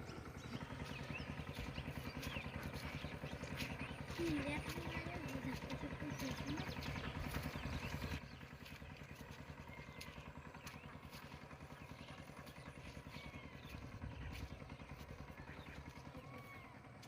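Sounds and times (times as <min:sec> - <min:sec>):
motor engine running: 0:00.0 - 0:17.0.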